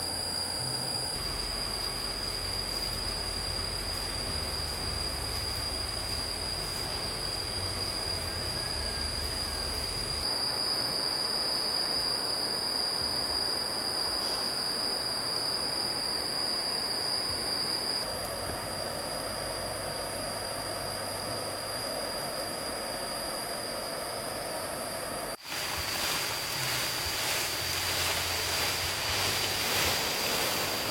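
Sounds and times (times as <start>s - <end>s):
thin high whine: 0.0s - 30.9s
stream water rushing: 25.4s - 30.9s.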